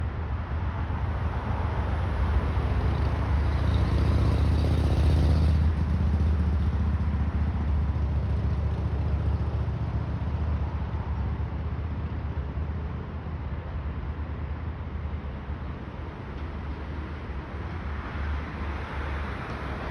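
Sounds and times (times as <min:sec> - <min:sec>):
train engine hum and rumble: 0:00.0 - 0:04.8, 0:05.5 - 0:19.9.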